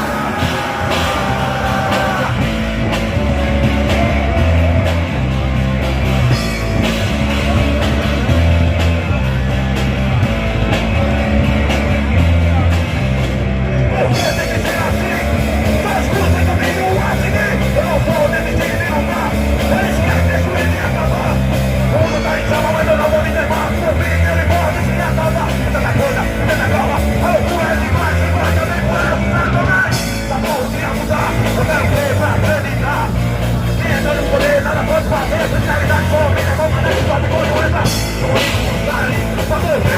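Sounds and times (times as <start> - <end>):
shouted singing: 0.0 - 10.1
rock band playing live: 0.0 - 39.9.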